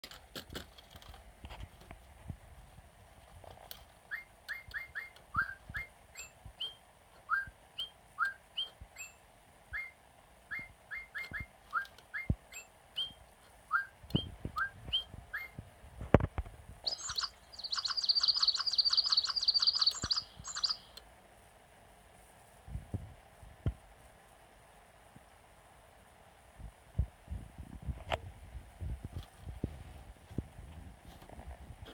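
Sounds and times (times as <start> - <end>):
bird-like chirps and whistles: 4.1 - 15.6, 16.8 - 21.0.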